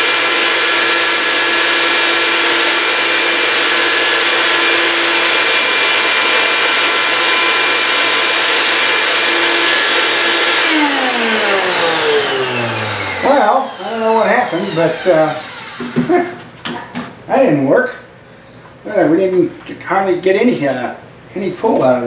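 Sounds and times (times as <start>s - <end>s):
vacuum motor whine: 0.0s - 16.2s.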